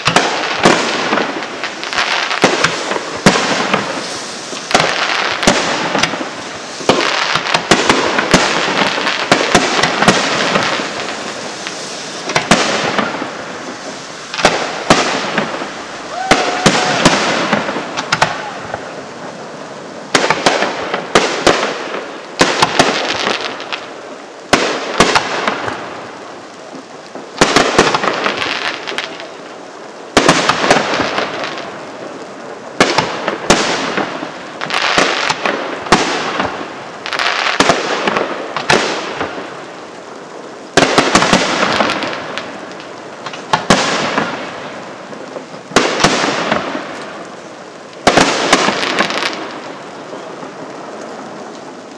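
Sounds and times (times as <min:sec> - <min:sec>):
firework shells bursting: 0:00.0 - 0:19.0
firework crackle: 0:00.0 - 0:51.9.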